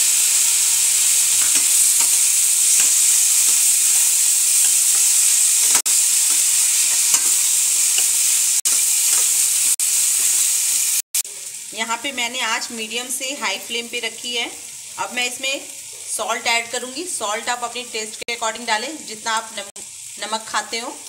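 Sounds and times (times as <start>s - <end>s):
tomatoes sizzling in hot oil: 0.0s - 21.0s
steel spatula scraping a pan: 1.2s - 9.5s.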